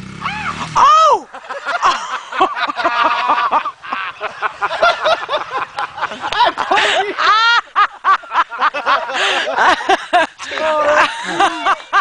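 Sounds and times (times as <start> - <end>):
high drawn-out cry: 0.1 - 1.4
people laughing and shrieking: 0.2 - 12.0.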